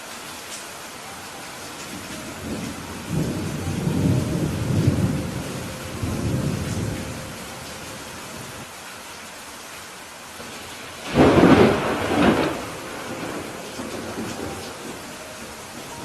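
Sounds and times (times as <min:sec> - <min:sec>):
rain hiss: 0:00.0 - 0:16.0
thunder rumbling: 0:01.8 - 0:08.6, 0:10.4 - 0:16.0.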